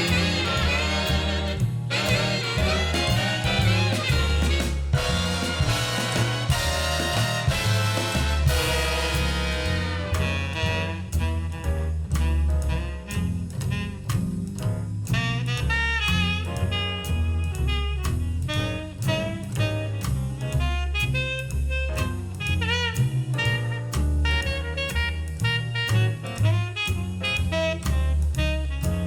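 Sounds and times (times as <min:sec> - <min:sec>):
horn melody over loudspeakers: 0:00.0 - 0:11.3
bass notes: 0:00.0 - 0:29.0
steady drum beat: 0:00.0 - 0:29.0.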